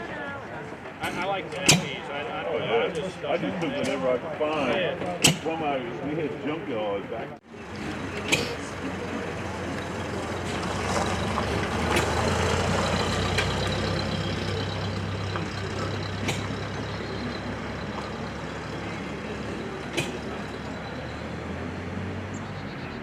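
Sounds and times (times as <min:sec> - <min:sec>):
engine humming: 0:07.2 - 0:23.0
sharp clicks or knocks: 0:19.8 - 0:20.4.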